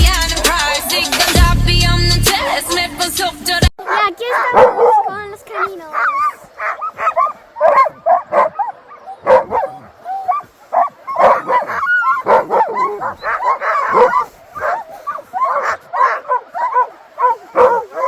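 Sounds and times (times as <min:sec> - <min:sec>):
sled dogs yipping and barking: 0:03.8 - 0:18.0.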